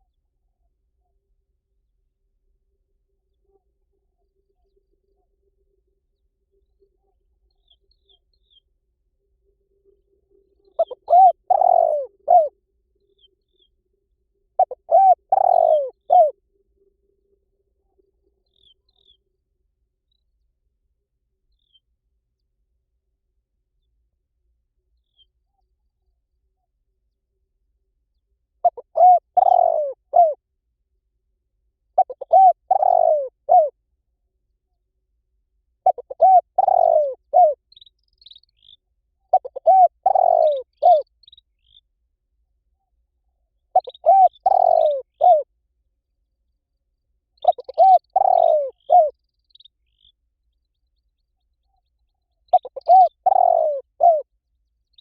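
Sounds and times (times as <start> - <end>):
small bird high chirps: 35.9 - 41.8, 43.8 - 45.4, 47.4 - 50.2.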